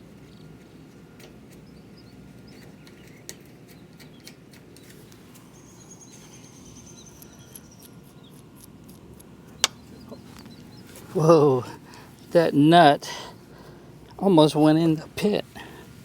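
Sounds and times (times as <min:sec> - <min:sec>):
low outdoor rumble: 0:05.1 - 0:16.0
faint high chirps: 0:05.5 - 0:08.4.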